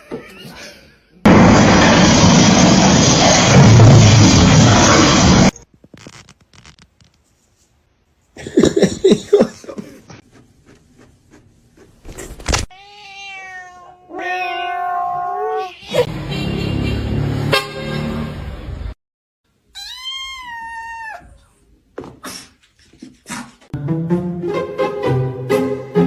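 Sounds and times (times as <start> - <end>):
loud noise: 1.3 - 5.6
burst of mixed noise: 1.3 - 5.7
cat meowing: 12.7 - 16.1, 19.7 - 21.5.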